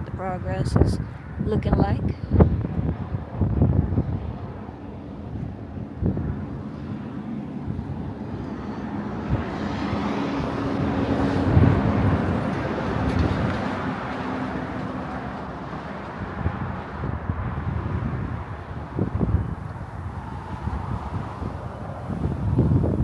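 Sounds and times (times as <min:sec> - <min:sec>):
outdoor background noise: 0:00.0 - 0:23.0
vehicle passing: 0:06.1 - 0:23.0.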